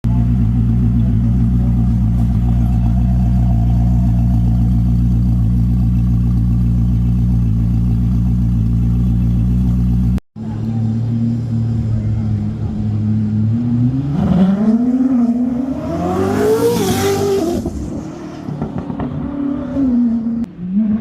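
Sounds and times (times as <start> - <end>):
car engine idling: 0.0 - 13.5.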